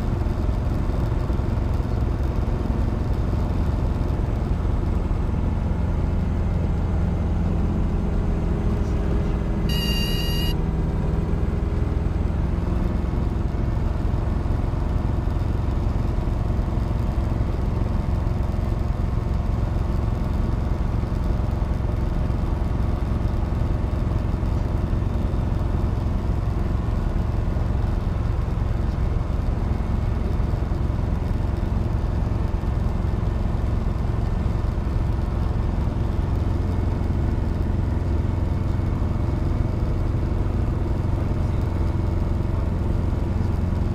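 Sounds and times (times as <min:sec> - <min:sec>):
helicopter engine and rotor droning: 0:09.7 - 0:10.6
high-pitched beep: 0:09.7 - 0:10.6.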